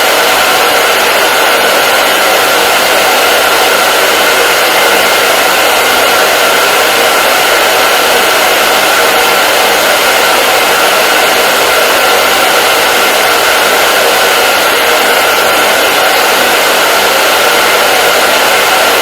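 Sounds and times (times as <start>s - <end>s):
hair dryer running: 0.0s - 19.0s.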